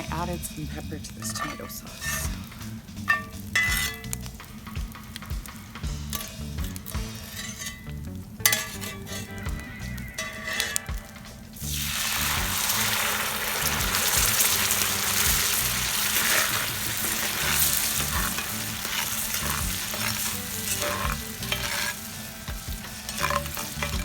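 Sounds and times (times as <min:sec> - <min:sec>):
sauce sizzling in a pan: 0:00.1 - 0:24.0
stirring knocks: 0:01.1 - 0:11.1, 0:13.6 - 0:24.0.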